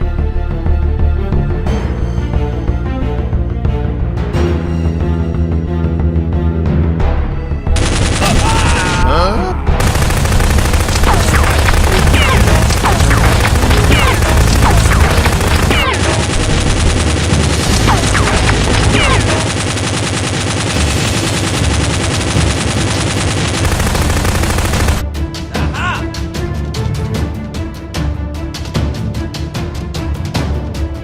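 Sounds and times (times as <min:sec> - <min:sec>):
automatic gunfire: 0:07.8 - 0:09.0, 0:09.8 - 0:25.0.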